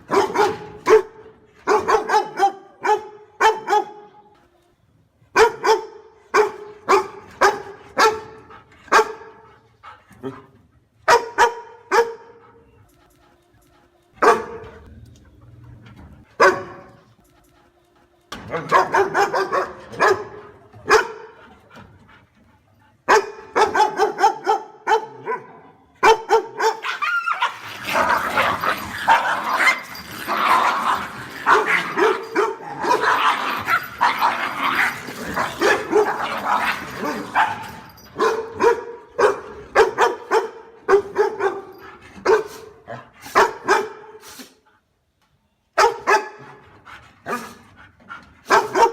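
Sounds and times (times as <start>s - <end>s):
dog barking: 0.0s - 4.1s, 5.4s - 9.4s, 11.0s - 12.4s, 14.2s - 14.8s, 16.4s - 17.0s, 18.5s - 21.4s, 23.1s - 29.8s, 30.5s - 34.4s, 35.6s - 42.7s, 43.3s - 44.2s, 45.8s - 46.6s, 48.5s - 48.9s.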